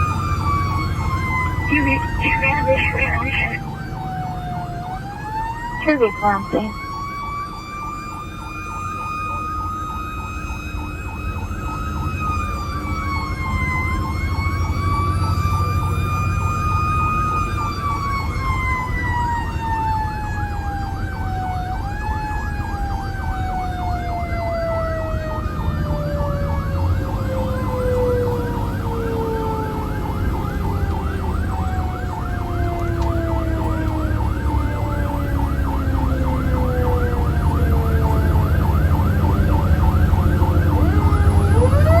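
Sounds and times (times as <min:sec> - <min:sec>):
siren wailing: 0:00.0 - 0:42.0
siren yelping: 0:00.2 - 0:07.2, 0:25.9 - 0:42.0.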